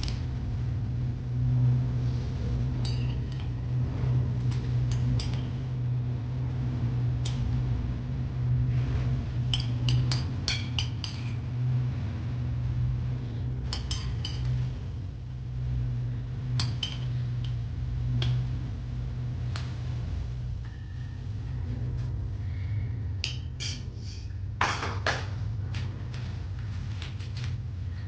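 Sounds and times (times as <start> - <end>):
steady low hum: 0.0 - 28.0
utensils clinking against dishes: 2.8 - 3.5, 13.7 - 14.6, 16.6 - 17.2, 23.2 - 23.8.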